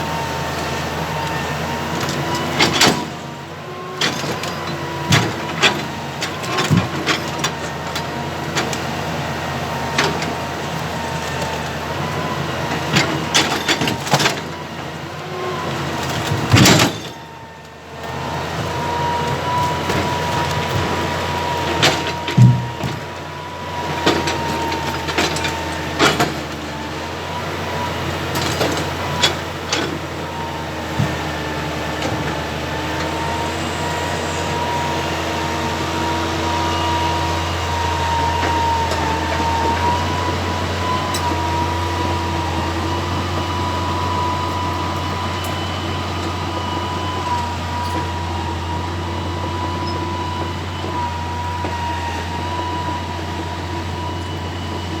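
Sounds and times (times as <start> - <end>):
diesel engine running: 0.0 - 55.0
logs knocking and clunking: 21.7 - 23.2
high hydraulic whine: 27.8 - 55.0.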